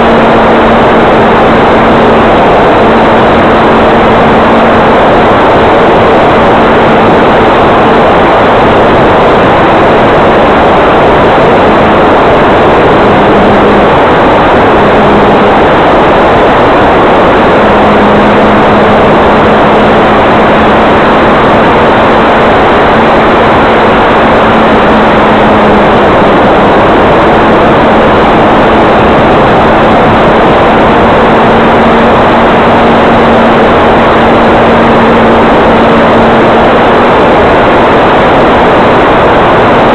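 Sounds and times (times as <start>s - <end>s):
electric motor and propeller hum: 0.0s - 39.9s
wind rush: 0.0s - 39.9s.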